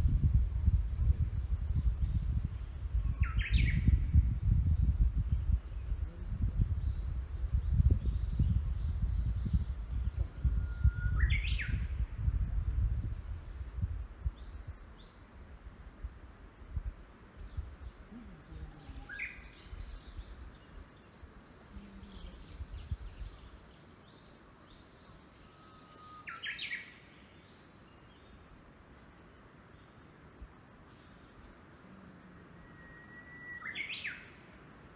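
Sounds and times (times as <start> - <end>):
wind buffeting microphone: 0.0 - 20.8, 21.7 - 23.7.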